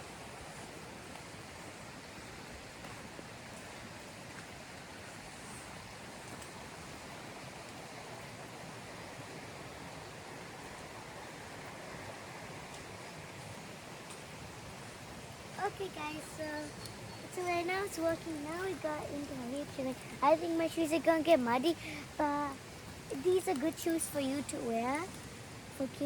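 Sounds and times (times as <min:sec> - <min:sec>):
rain falling through forest: 0:00.0 - 0:26.0
faint ticks: 0:06.2 - 0:06.6, 0:16.2 - 0:20.2.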